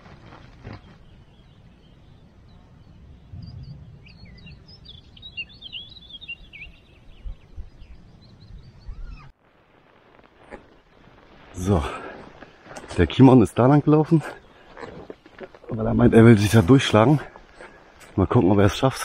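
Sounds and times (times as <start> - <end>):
small bird chirping: 0.6 - 9.3.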